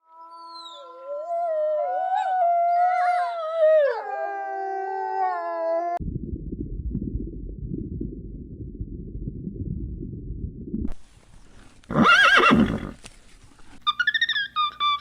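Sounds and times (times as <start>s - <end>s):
low rumbling noise: 6.0s - 11.7s.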